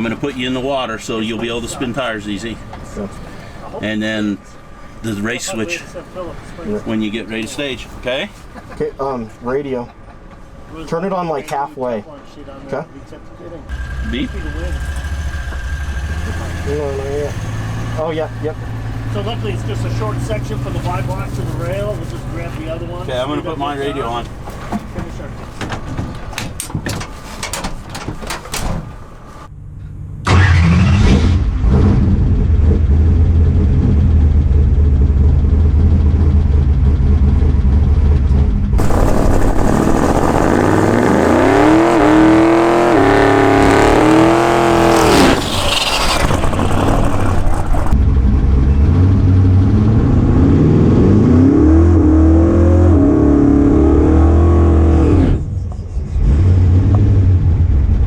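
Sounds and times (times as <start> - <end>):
drag car engine revving: 13.7 - 29.5, 30.3 - 55.5.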